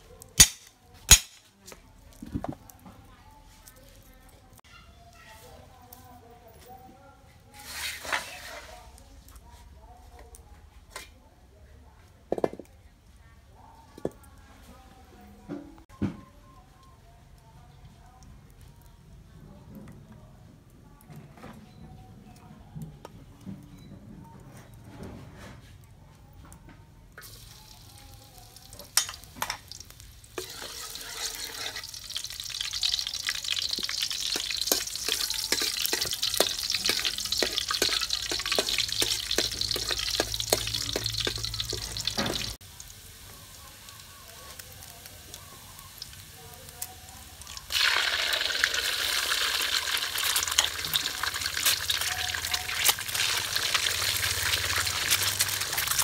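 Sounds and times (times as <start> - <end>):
food sizzling in hot oil: 7.6 - 9.0, 27.2 - 56.0
metal spatula scraping wok: 7.6 - 9.0, 30.3 - 42.6.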